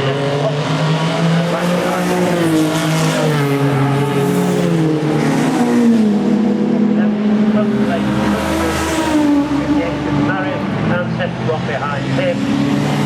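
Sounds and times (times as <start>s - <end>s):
racing car engine revving down: 0.0s - 13.0s.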